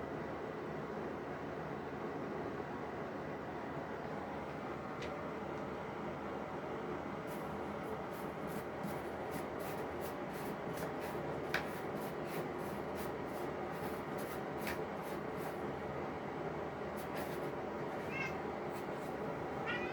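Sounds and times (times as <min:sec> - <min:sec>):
cat scuffing against fabric: 0:07.3 - 0:15.6, 0:17.0 - 0:19.2.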